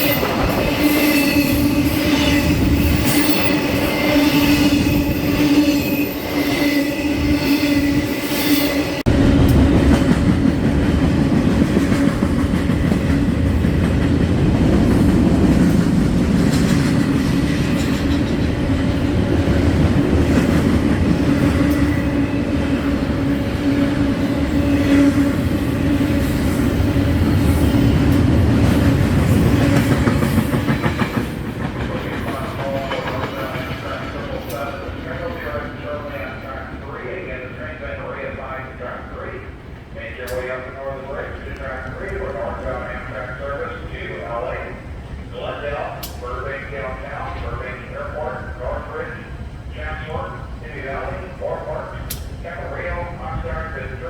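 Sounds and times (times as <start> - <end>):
wheels clacking on rails: 0.0 - 37.0
freight train passing: 0.0 - 54.0.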